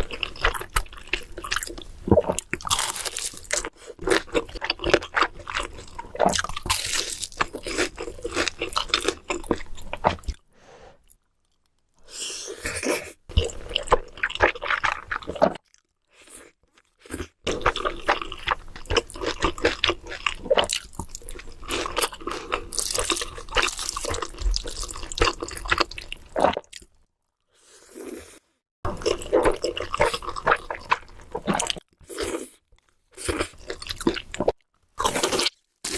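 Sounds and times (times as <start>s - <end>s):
wet chewing and smacking: 16.6s - 27.0s, 28.9s - 35.9s.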